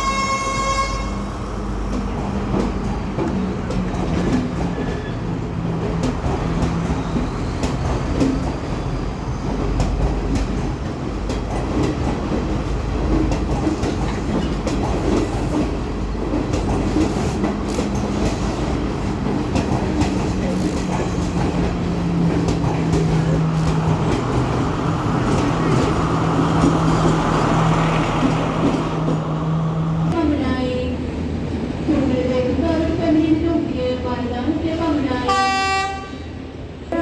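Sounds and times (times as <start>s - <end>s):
train engine hum: 0.0s - 37.0s
train wheels clattering: 1.8s - 29.6s.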